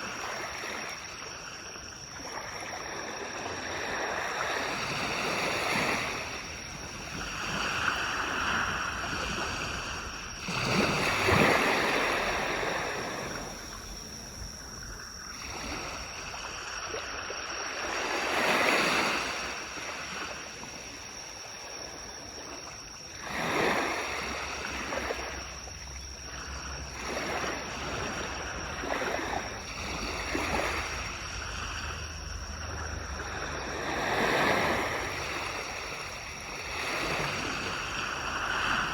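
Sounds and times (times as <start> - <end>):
waves washing onto beach: 2.1 - 38.9.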